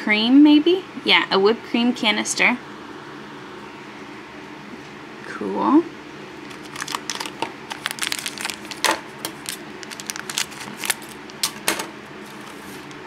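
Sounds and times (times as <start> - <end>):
plastic wrapper crackling: 6.4 - 11.7, 12.3 - 13.0.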